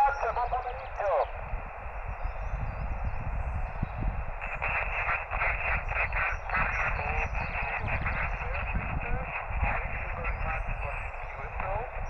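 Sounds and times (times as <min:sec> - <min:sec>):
weak radio signal: 0:00.0 - 0:01.7, 0:03.6 - 0:12.0
shortwave receiver hiss: 0:00.0 - 0:01.8.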